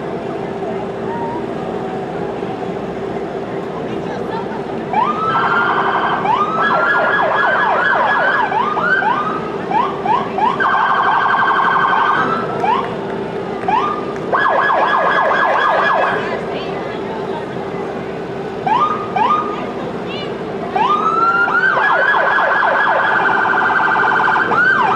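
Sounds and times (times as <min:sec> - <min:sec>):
electronic siren yelping and warbling: 0:20.8 - 0:24.9.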